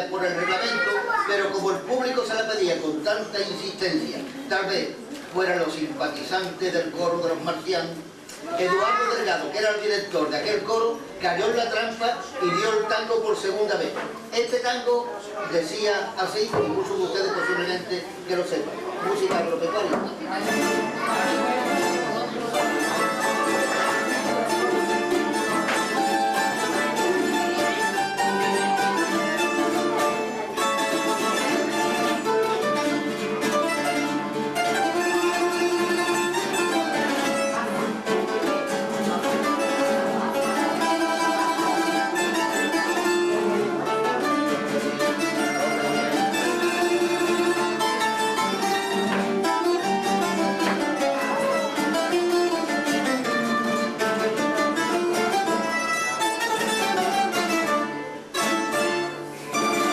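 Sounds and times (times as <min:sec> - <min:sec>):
plucked string trio: 0:16.4 - 0:17.2, 0:18.2 - 0:59.9.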